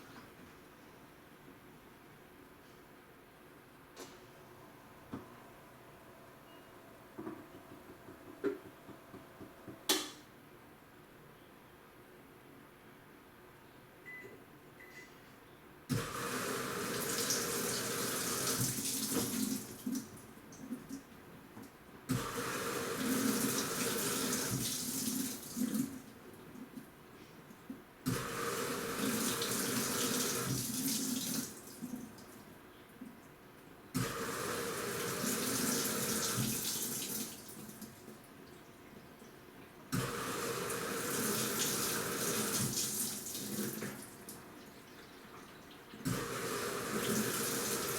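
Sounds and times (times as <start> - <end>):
washing machine water churning: 15.9 - 21.0, 22.1 - 26.8, 28.0 - 32.4, 34.0 - 39.0, 39.9 - 47.9.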